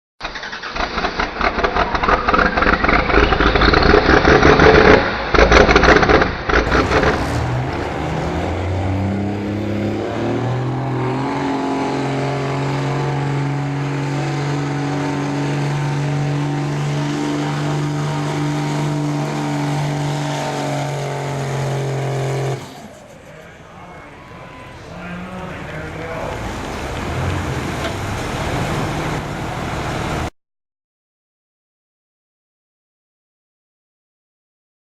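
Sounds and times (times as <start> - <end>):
diesel truck engine revving: 0.3 - 30.3.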